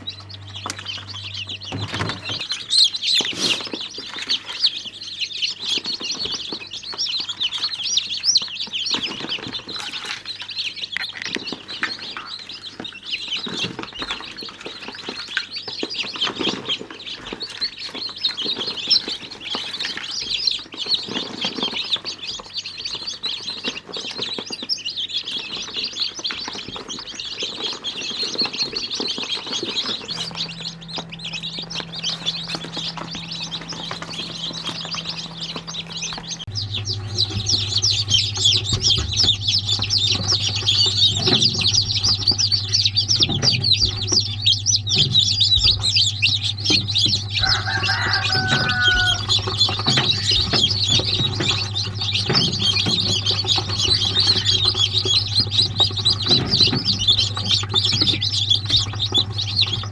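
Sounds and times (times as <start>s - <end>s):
low electrical hum: 0.0s - 59.9s
small birds chirping: 0.0s - 59.9s.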